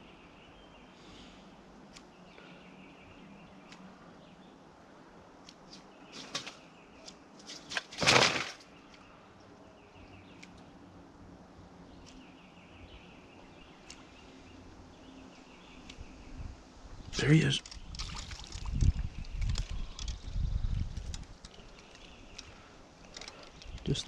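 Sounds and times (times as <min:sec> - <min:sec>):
bird chirping: 0:02.0 - 0:04.7, 0:08.5 - 0:11.0, 0:11.8 - 0:24.0.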